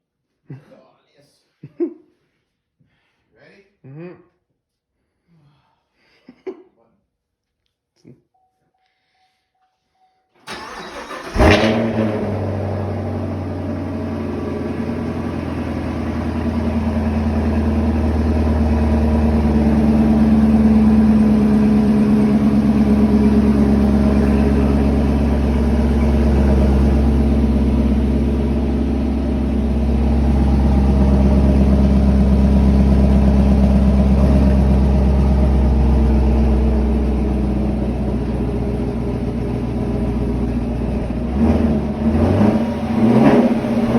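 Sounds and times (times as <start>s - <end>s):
car engine cold-starting: 10.4s - 43.9s.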